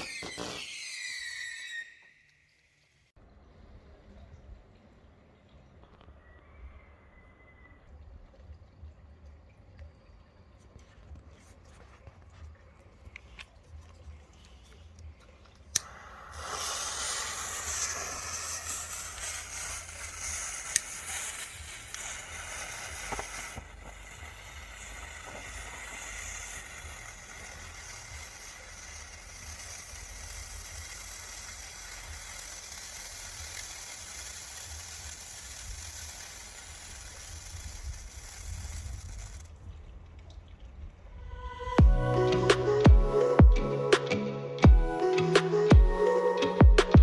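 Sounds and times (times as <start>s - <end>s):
firework sharp crack: 0.0s - 1.9s, 15.8s - 39.5s
firework crackling hiss: 0.0s - 2.3s, 15.7s - 39.7s.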